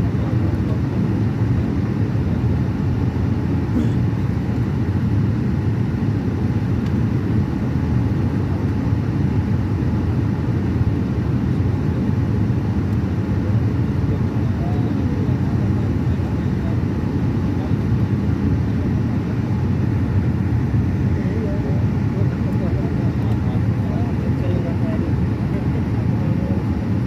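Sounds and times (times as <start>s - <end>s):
airliner cabin rumble: 0.0s - 27.0s.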